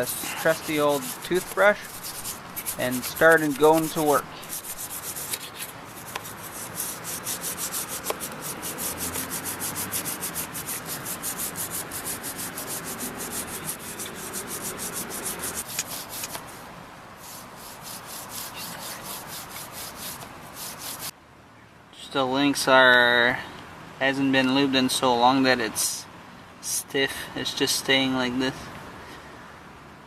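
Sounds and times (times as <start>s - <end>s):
toothbrush scrubbing a chain: 0.0s - 16.6s, 17.2s - 21.1s.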